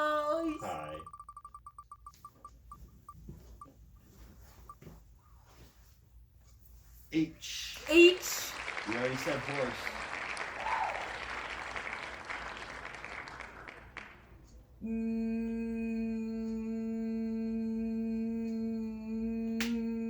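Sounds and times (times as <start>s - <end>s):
person humming a long note: 14.8s - 20.0s.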